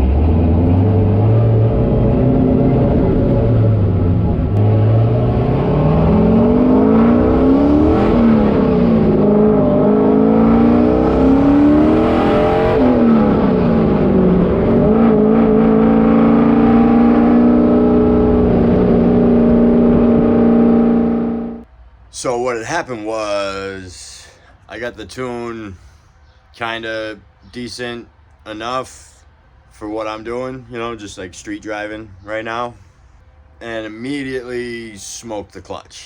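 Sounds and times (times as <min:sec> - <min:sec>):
car engine accelerating through gears: 0:00.0 - 0:21.7.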